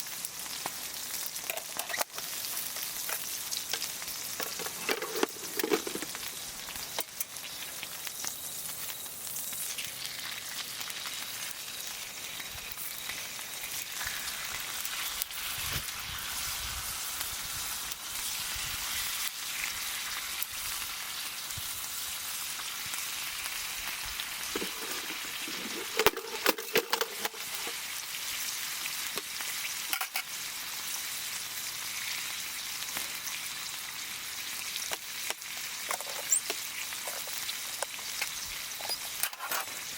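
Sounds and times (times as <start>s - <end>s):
food sizzling over campfire: 0.0s - 39.9s
fire popping: 24.4s - 27.8s.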